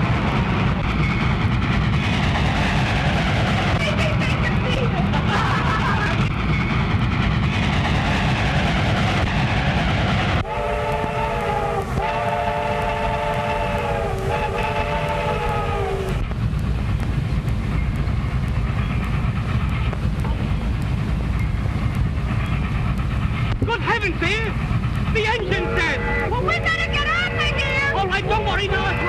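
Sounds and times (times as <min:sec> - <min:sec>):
train rumbling on rails: 0:00.0 - 0:29.0
train whistle blasts: 0:10.4 - 0:16.2, 0:25.5 - 0:28.0.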